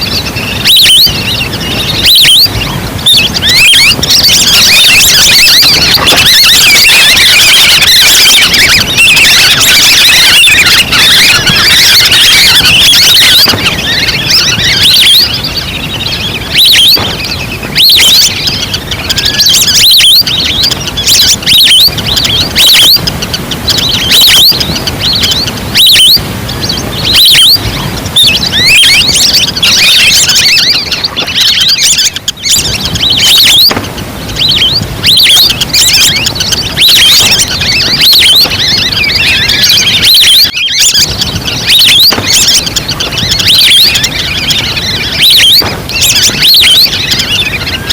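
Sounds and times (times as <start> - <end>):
ducks whistling chirps distorted: 0.0 - 47.9.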